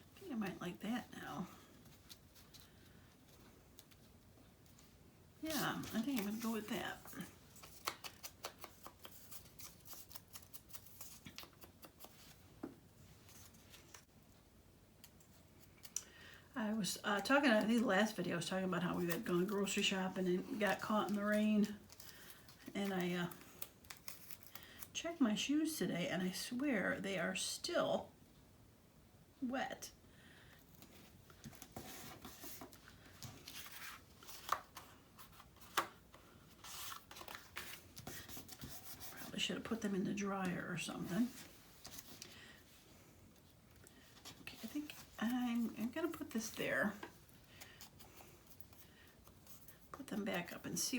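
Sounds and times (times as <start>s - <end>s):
paper and card rustling: 5.5s - 12.6s, 17.5s - 25.0s, 30.7s - 40.4s, 41.0s - 50.9s.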